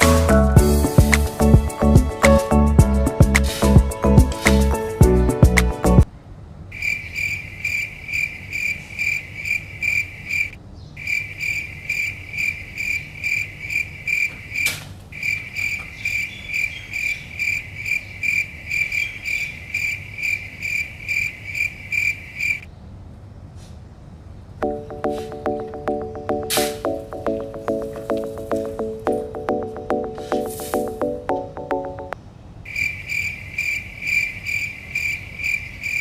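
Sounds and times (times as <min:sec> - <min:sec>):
cricket chirping: 0:06.7 - 0:22.7, 0:32.6 - 0:36.0.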